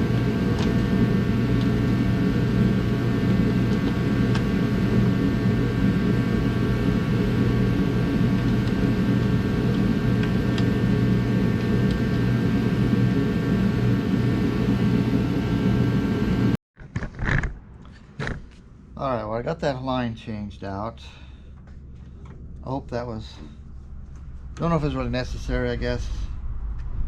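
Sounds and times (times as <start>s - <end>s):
machine humming and whining: 0.0s - 16.6s.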